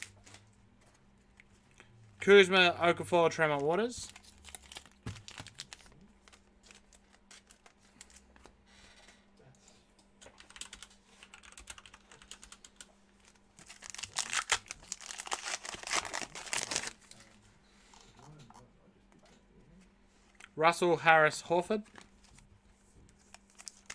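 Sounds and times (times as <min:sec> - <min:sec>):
wrapper crinkling and tearing: 0:04.0 - 0:08.3, 0:13.6 - 0:17.3, 0:23.2 - 0:23.9.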